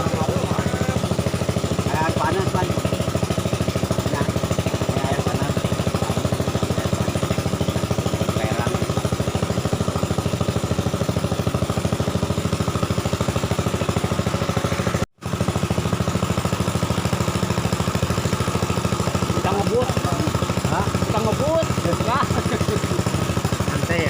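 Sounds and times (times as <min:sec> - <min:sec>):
small boat engine running: 0:00.0 - 0:24.0.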